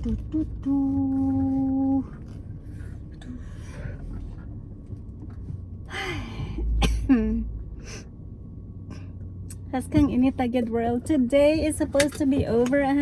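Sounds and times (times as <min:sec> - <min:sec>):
low rumble: 0:00.0 - 0:13.0
woman sighing: 0:05.9 - 0:07.4.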